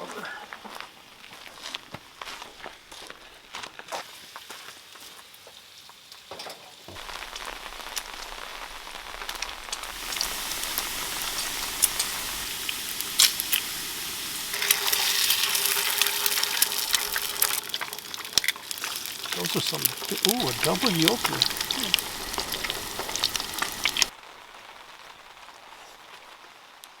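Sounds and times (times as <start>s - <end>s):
food sizzling in a frying pan: 6.8s - 27.0s
crackles and pops: 6.9s - 27.0s.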